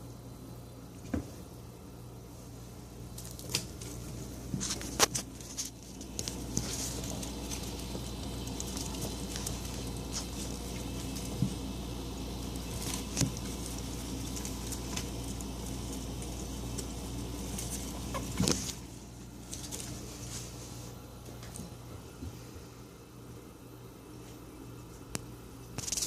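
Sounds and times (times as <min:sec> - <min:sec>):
refrigerator hum: 0:00.0 - 0:26.0
rabbits scratching and rustling: 0:02.8 - 0:22.5, 0:24.9 - 0:26.0.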